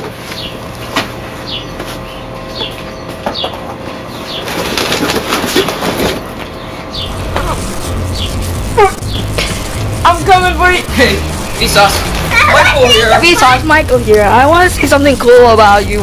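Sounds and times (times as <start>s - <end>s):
bird chirping: 6.6s - 7.3s
rushing noise: 7.0s - 16.0s.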